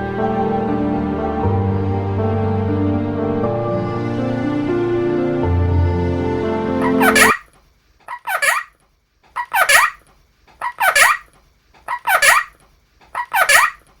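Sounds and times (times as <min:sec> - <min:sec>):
parrot harsh calls: 0:06.8 - 0:07.5, 0:08.1 - 0:08.8, 0:09.4 - 0:10.0, 0:10.6 - 0:13.9.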